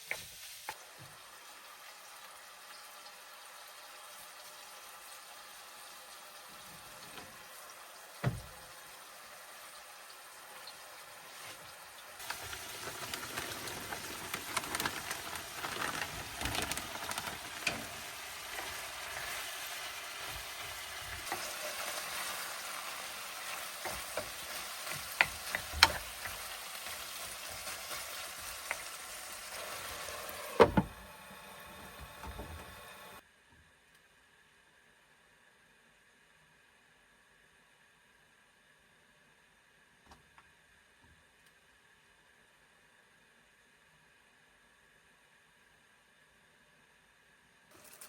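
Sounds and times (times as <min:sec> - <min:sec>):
sizzling and crackling hiss: 0:00.0 - 0:33.2, 0:47.7 - 0:48.0.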